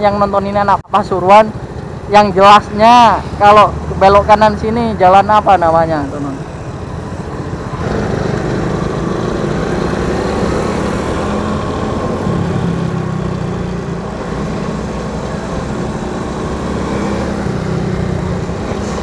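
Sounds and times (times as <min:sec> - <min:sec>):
motorcycle engine running: 0:07.8 - 0:10.6.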